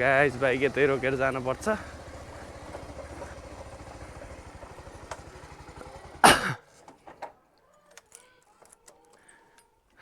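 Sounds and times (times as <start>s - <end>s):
motorcycle engine idling: 0.0s - 6.4s.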